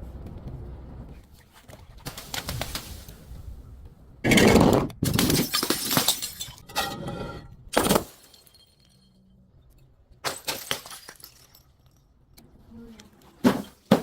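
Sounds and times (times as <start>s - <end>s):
glass bottle smashing: 4.3s - 6.8s, 7.8s - 9.2s, 10.2s - 12.0s
glass shards crunching and tinkling: 8.1s - 9.4s.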